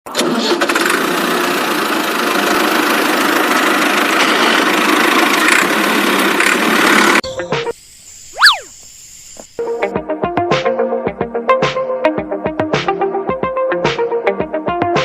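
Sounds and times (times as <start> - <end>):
motor running steadily: 5.6 - 9.8.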